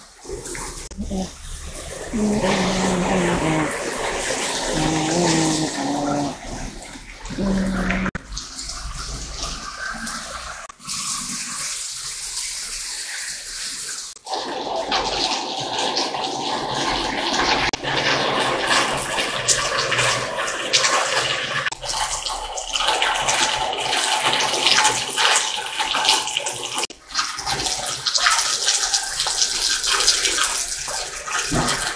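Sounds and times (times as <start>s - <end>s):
heavy rain pouring: 0.9s - 8.2s.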